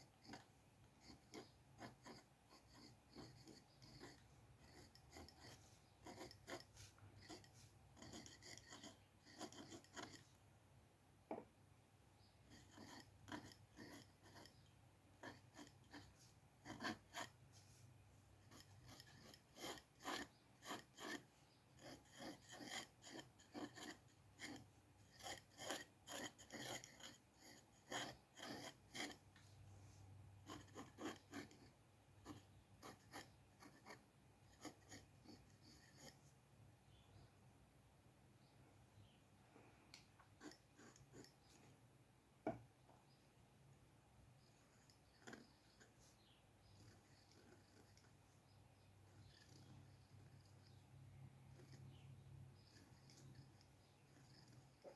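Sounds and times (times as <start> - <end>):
drawing tool scratching paper: 0.0 - 10.4, 12.5 - 29.4, 30.4 - 36.3, 40.4 - 41.6, 44.7 - 48.3, 48.9 - 50.8, 51.4 - 54.9.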